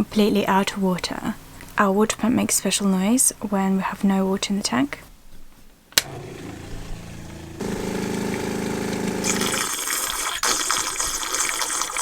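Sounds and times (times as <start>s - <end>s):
water pump humming: 6.0s - 10.8s.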